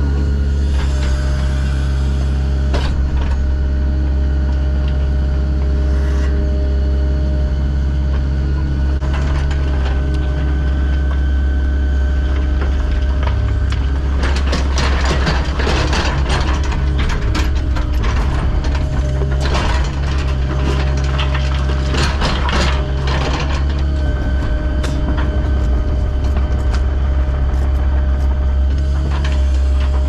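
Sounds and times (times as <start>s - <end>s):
heavy machine engine running: 0.0s - 30.0s
metallic rattling and clanking: 12.5s - 30.0s.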